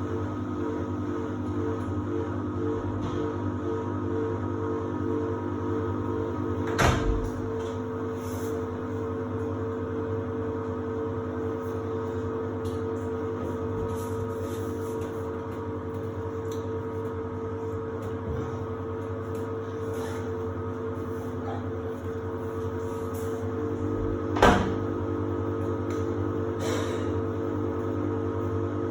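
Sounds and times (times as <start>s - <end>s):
washer-dryer humming: 0.0s - 28.9s.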